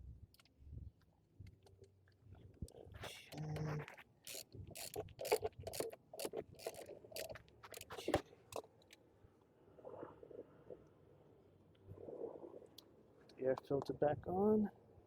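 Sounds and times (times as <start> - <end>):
plastic parts clicking and scraping: 2.6 - 9.0.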